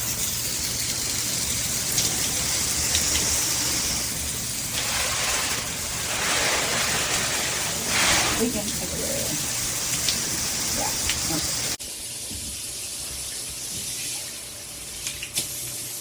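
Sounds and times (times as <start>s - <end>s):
water spraying from shower head: 0.0s - 11.8s.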